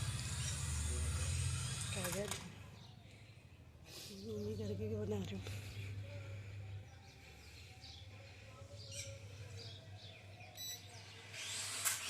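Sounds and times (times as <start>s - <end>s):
steady low hum: 2.6s - 11.6s
faint bird chirps: 5.6s - 11.2s.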